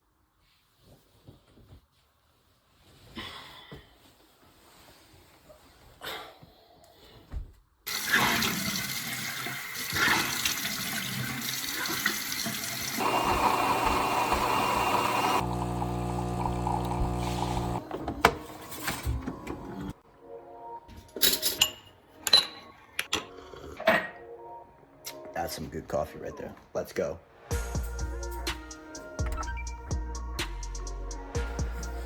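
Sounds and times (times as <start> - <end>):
steady machine hum: 13.0 - 17.8.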